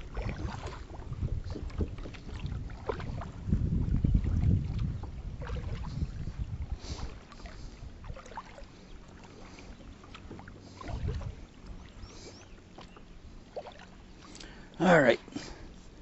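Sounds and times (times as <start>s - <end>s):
low rumbling water surges: 0.0s - 16.0s
water splashing against kayak hull: 0.0s - 16.0s.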